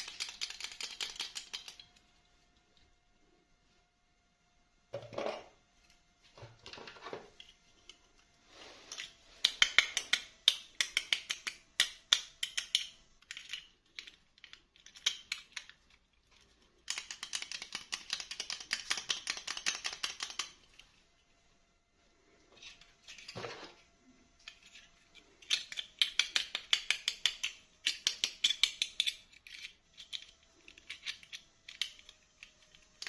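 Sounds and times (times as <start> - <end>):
plastic pieces clicking: 0.0 - 2.1, 8.9 - 20.9, 24.4 - 33.0.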